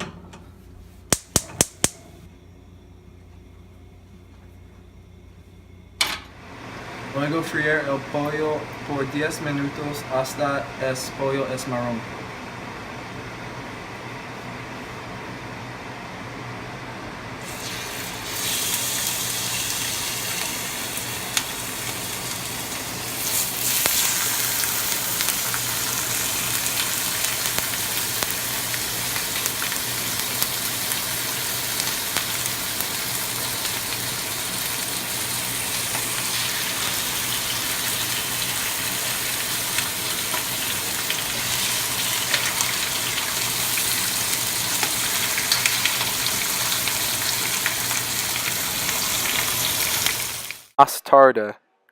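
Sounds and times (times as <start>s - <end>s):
chicken sizzling in oil: 17.4s - 50.7s.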